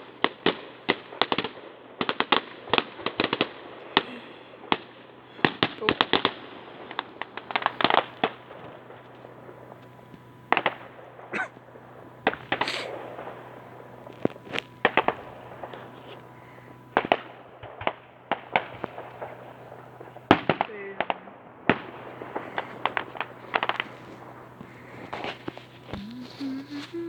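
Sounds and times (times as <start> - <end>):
firework hissing burst: 10.5 - 20.8.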